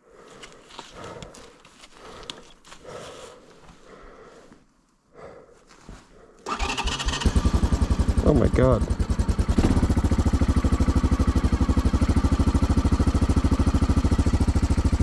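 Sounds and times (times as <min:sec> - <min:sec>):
rustling and scraping: 0:00.1 - 0:05.0, 0:05.6 - 0:06.4
small engine running: 0:06.5 - 0:15.0.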